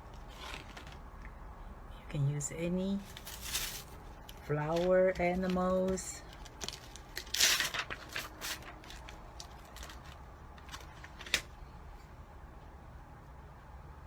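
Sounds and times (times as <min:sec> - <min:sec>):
paper rustling: 0:00.1 - 0:01.1, 0:03.0 - 0:11.6.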